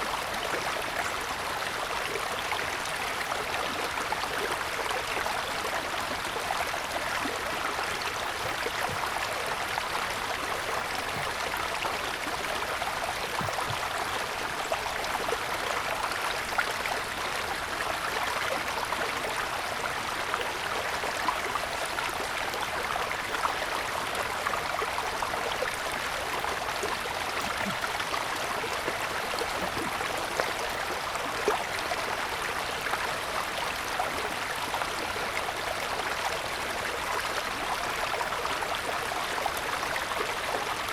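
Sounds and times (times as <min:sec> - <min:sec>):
stream rushing over stones: 0:01.1 - 0:40.9
water splashes: 0:25.8 - 0:31.7.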